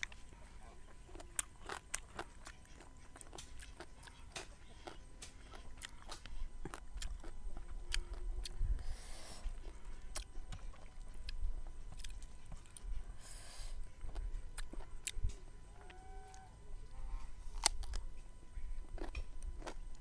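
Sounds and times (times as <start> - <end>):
person chewing crunchy food: 0.0 - 18.2, 18.9 - 20.0.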